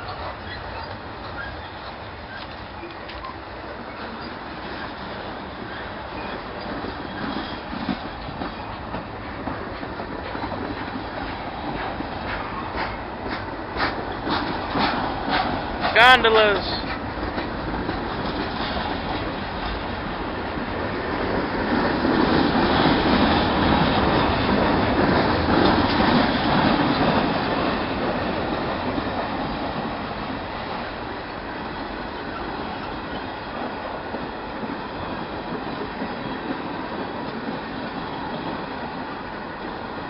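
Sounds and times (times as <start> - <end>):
freight train rolling on rails: 0.0 - 40.0.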